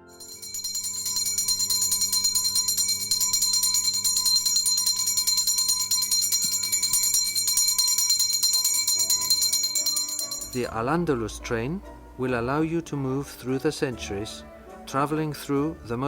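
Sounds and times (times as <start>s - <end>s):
fast jingling percussion: 0.0s - 10.7s
background music: 8.9s - 16.0s.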